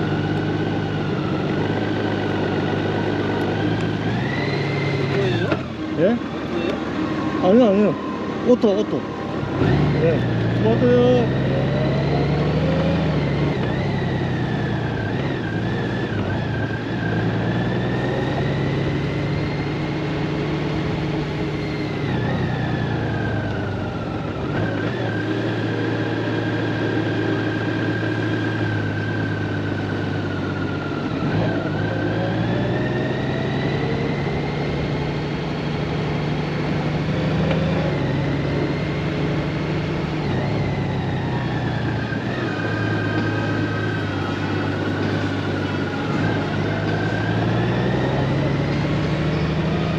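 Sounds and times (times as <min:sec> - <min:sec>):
motorcycle engine revving: 0:00.0 - 0:49.9
road and wind noise: 0:00.0 - 0:49.9.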